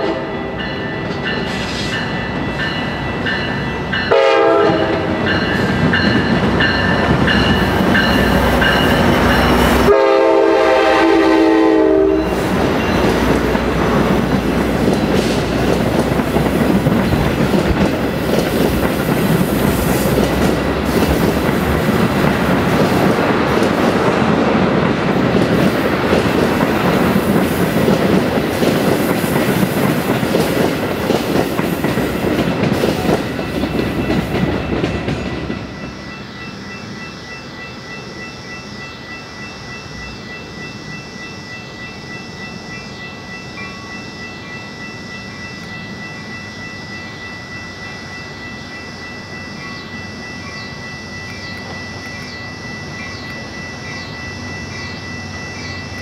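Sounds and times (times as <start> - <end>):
train horn blasts: 0.0 - 0.6, 4.0 - 5.3, 9.7 - 12.4
wheels clacking over rail joints: 12.2 - 35.8.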